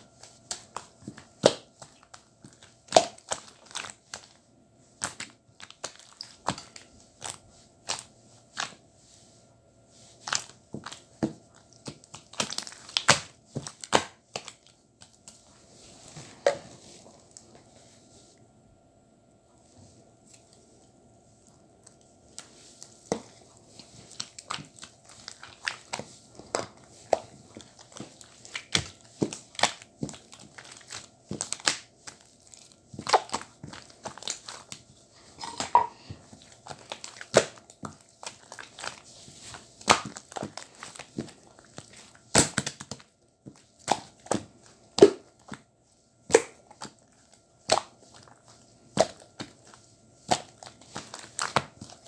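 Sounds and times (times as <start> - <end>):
crinkling and crushing crackles: 21.4 - 45.6, 46.3 - 52.0.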